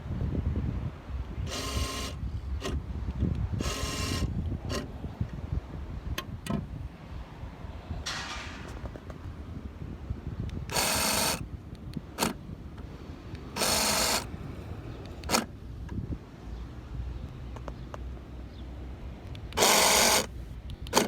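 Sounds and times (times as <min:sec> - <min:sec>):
lock actuator buzzing: 0:01.4 - 0:02.8, 0:03.6 - 0:04.9, 0:10.6 - 0:11.4, 0:13.4 - 0:14.3, 0:19.4 - 0:21.0.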